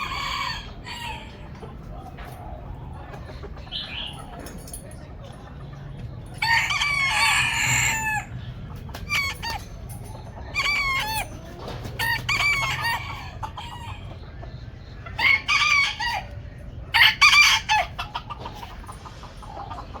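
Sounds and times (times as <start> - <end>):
rooster crowing: 0.0 - 1.4, 6.4 - 8.3, 12.0 - 14.0, 15.2 - 18.2
chickens clucking: 0.0 - 20.0.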